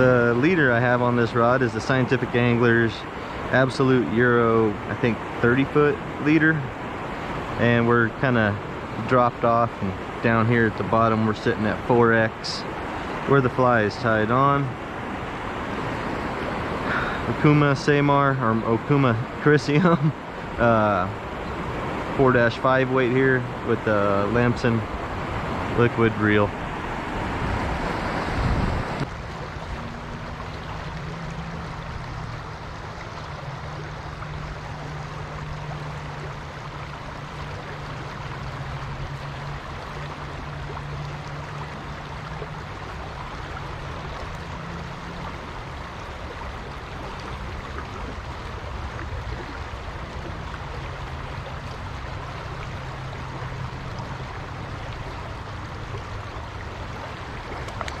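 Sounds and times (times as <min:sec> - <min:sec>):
flowing river water: 0:00.0 - 0:58.0.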